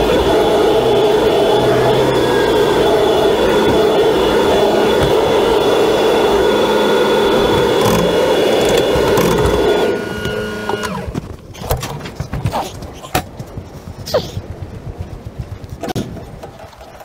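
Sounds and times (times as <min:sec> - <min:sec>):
motor running and winding down: 0:00.0 - 0:11.2
knocks and clicks: 0:07.4 - 0:17.0.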